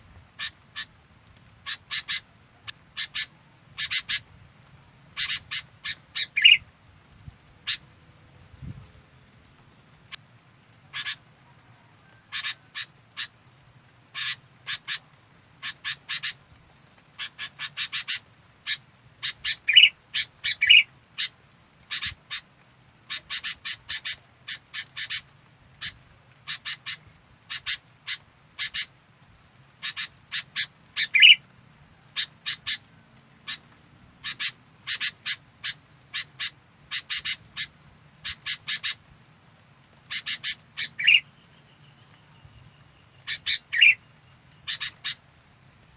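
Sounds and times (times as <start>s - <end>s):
bulbul chipping calls: 1.6s - 2.3s, 3.0s - 4.2s, 5.2s - 6.6s, 10.9s - 11.2s, 17.2s - 21.3s, 29.8s - 31.4s, 33.5s - 39.0s, 40.0s - 41.3s, 43.2s - 44.0s, 44.6s - 45.2s.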